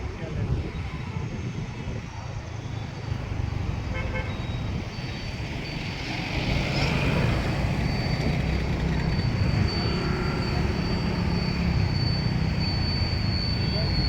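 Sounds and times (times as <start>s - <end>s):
traffic rumble: 0.0s - 14.0s
vehicle horn toot: 3.9s - 4.6s.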